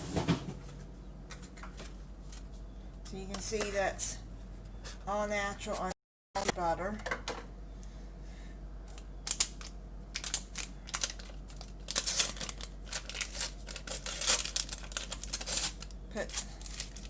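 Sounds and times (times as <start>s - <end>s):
paper wrapper crinkling and tearing: 9.2s - 17.0s.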